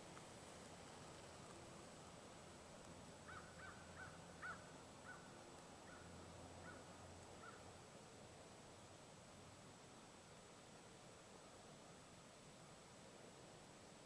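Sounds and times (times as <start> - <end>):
background hiss: 0.0 - 14.0
bird calling faintly: 3.2 - 7.8.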